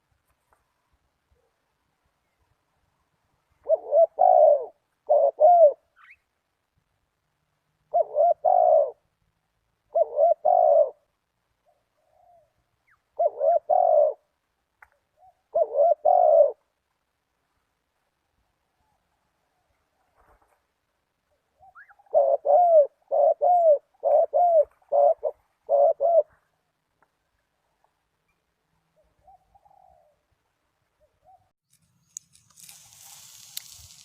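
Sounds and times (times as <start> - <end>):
dove cooing: 3.6 - 6.1, 7.9 - 9.1, 9.9 - 14.4, 15.2 - 16.7, 21.6 - 26.7, 29.0 - 30.2.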